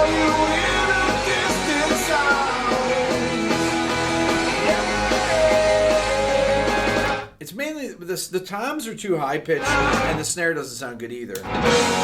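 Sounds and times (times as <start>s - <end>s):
guitars: 0.0s - 7.3s, 9.5s - 10.3s, 11.3s - 12.0s
person singing: 0.0s - 7.3s, 9.6s - 10.2s
drums: 0.0s - 7.6s, 9.5s - 10.4s, 11.3s - 12.0s.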